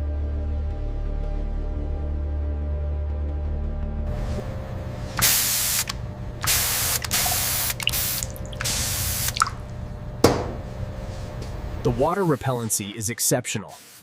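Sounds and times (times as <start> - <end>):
spray nozzle hissing: 5.2 - 9.6.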